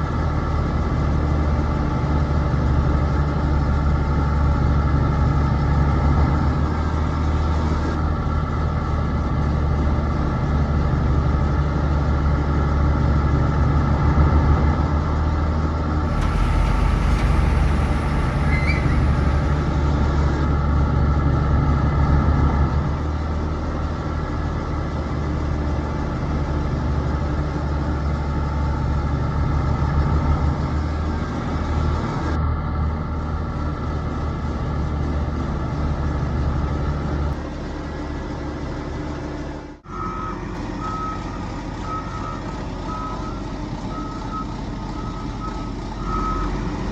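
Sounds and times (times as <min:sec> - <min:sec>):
hiss: 0:16.1 - 0:20.4
model engine rumble: 0:16.1 - 0:22.3.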